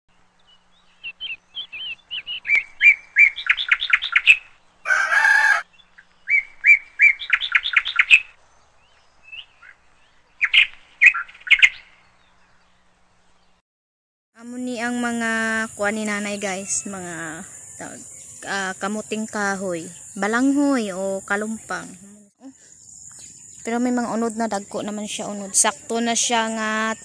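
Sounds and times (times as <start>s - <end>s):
songbird singing: 0.1s - 13.6s, 14.4s - 27.0s.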